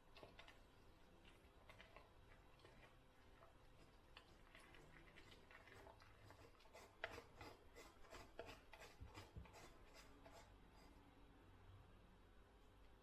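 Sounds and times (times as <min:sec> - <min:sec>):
faint scraping strokes: 0:05.0 - 0:11.1.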